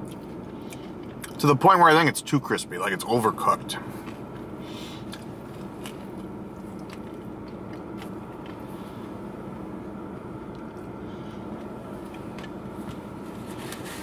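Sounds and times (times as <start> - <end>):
crunchy chewing close-up: 0.0 - 1.4, 3.4 - 13.1
steady low hum: 0.0 - 14.0.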